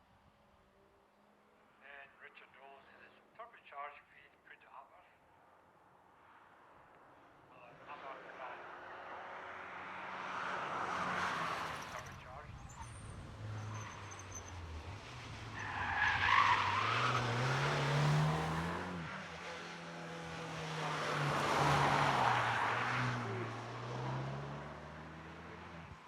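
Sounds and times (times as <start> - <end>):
car engine accelerating: 8.4 - 26.0.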